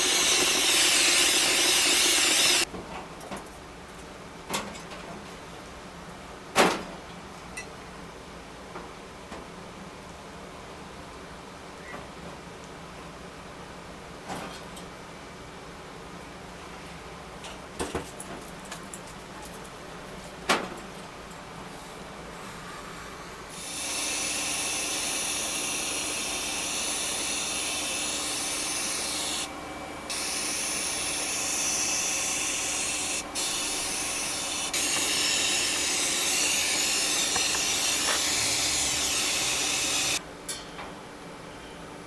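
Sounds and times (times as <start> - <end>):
compressed air hissing: 0.0 - 2.7, 23.6 - 29.5, 30.1 - 40.2.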